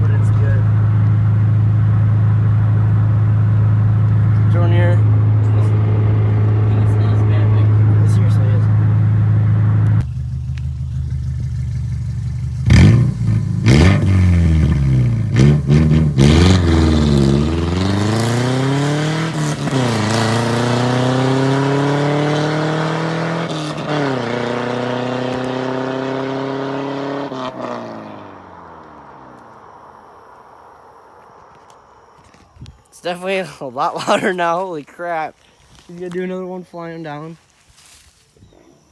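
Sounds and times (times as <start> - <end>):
car engine revving and accelerating: 0.0 - 29.8.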